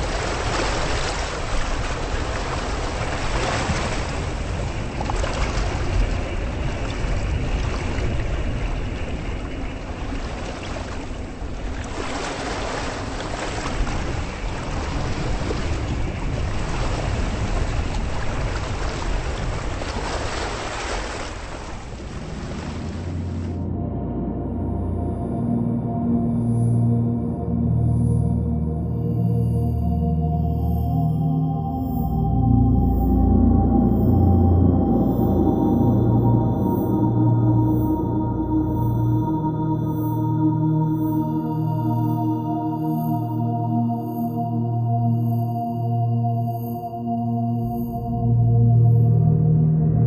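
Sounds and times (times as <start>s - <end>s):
waves washing against shore: 0.0s - 23.6s
wind rumbling on microphone: 0.0s - 25.8s.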